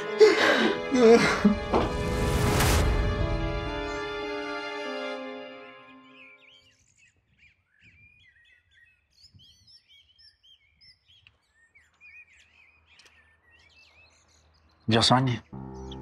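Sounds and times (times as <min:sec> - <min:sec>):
faint birdsong chirps: 0:05.6 - 0:16.0.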